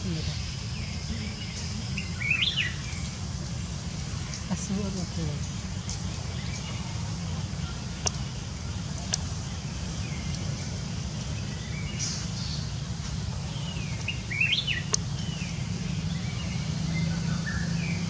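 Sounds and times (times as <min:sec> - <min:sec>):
steady low rumble: 0:00.0 - 0:18.0
wild birds chirping: 0:00.0 - 0:18.0
sharp clicks: 0:08.0 - 0:08.2.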